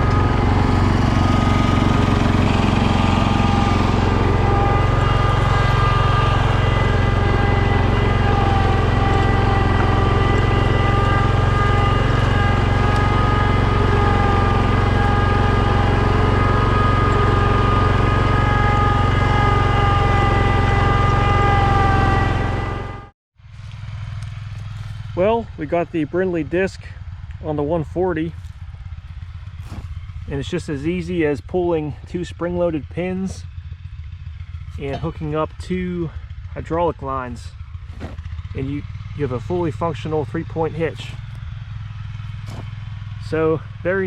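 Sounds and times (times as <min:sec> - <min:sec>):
high whine: 0:00.0 - 0:23.1
garden tractor engine running: 0:00.0 - 0:44.0.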